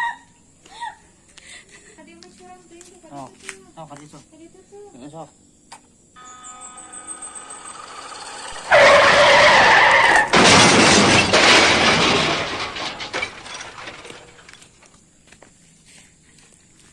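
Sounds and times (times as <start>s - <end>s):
tyres skidding: 6.2s - 14.8s
crashing and breaking: 7.1s - 14.9s.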